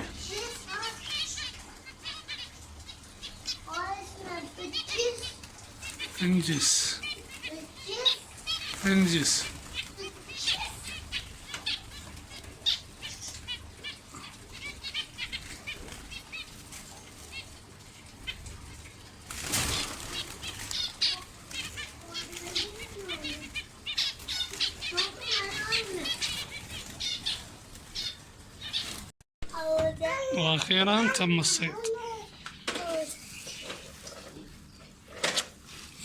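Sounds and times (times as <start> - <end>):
small bird's wings flapping: 18.8 - 27.9.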